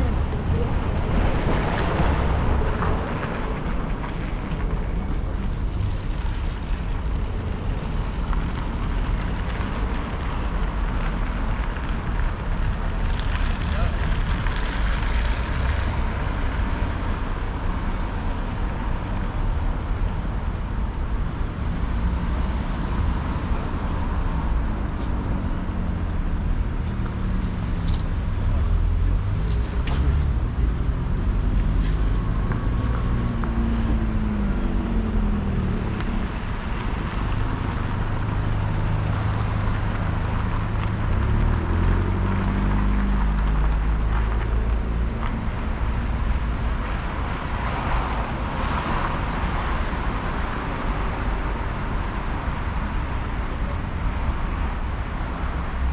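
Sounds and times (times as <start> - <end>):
vehicles passing: 0.0 - 55.9.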